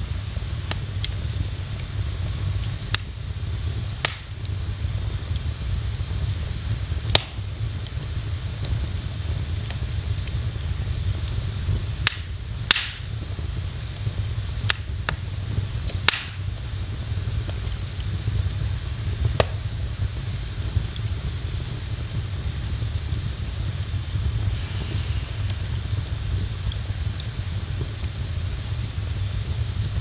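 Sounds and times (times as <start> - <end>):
fire popping: 0.0 - 30.0
low rumble and hiss: 0.0 - 30.0
wood fire crackling: 0.0 - 30.0.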